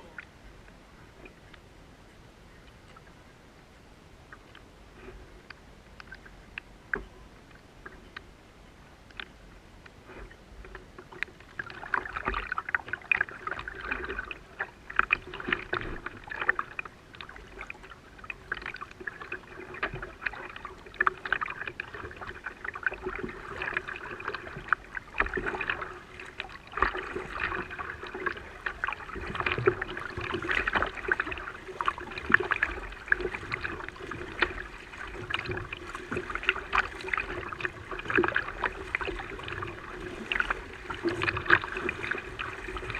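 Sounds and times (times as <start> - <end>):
water splashing around kayak: 0.0 - 42.9
paddle strokes splashing: 9.2 - 42.9.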